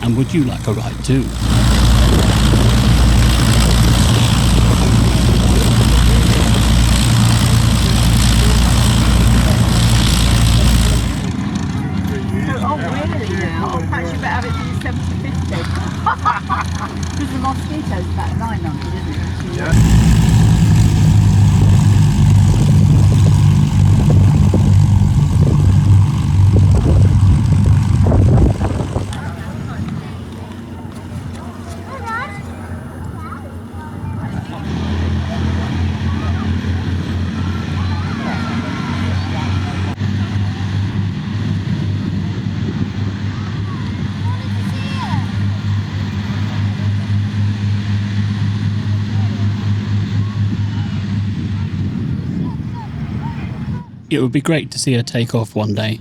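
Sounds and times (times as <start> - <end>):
aircraft engines droning: 0.0 - 56.0.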